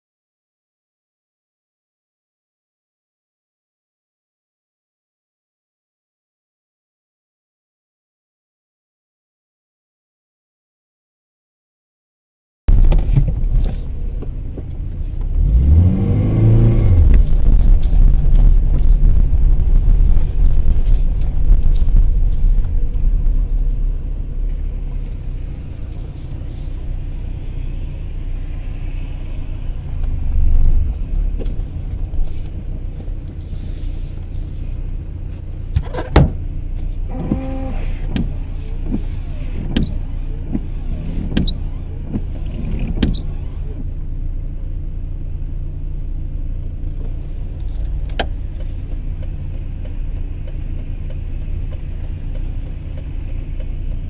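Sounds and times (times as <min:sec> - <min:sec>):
car engine and road rumble: 0:12.7 - 0:54.0.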